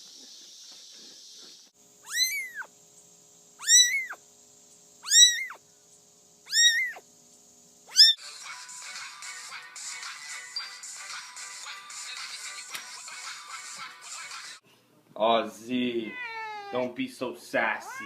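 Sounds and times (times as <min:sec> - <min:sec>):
cat meowing: 0:02.0 - 0:02.7, 0:03.6 - 0:04.2, 0:05.0 - 0:05.6, 0:06.5 - 0:07.0, 0:07.9 - 0:08.2, 0:16.0 - 0:16.9, 0:17.8 - 0:18.0.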